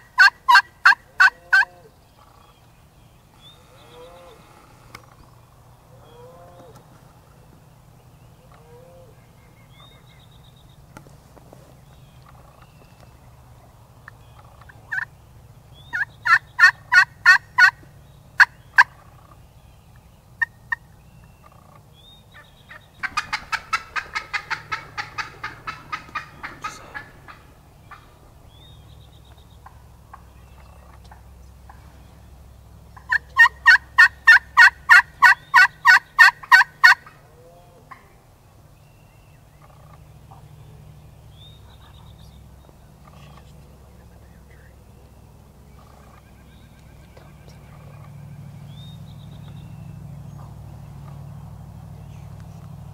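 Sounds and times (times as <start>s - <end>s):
turkey rattling gobble: 0.0s - 2.6s, 14.0s - 15.1s, 15.9s - 17.8s, 18.4s - 19.4s, 21.4s - 21.8s, 22.4s - 28.4s, 33.0s - 37.3s, 39.6s - 40.4s, 45.7s - 48.5s
turkey hen yelps: 0.2s - 1.9s, 15.9s - 17.8s, 22.7s - 28.2s, 33.0s - 38.2s.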